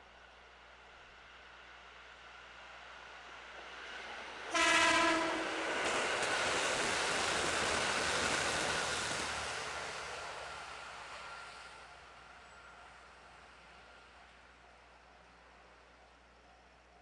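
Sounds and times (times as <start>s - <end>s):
train wheels rushing past: 4.0s - 12.0s
train horn blast: 4.5s - 5.5s.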